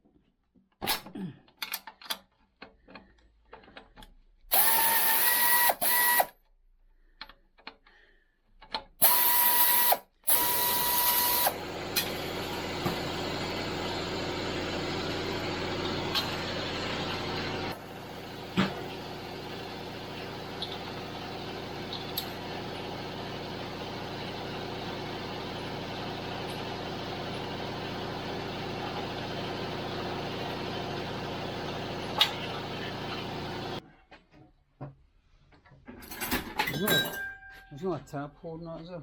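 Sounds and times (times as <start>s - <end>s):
power tool whining: 4.5s - 6.3s, 9.0s - 33.8s.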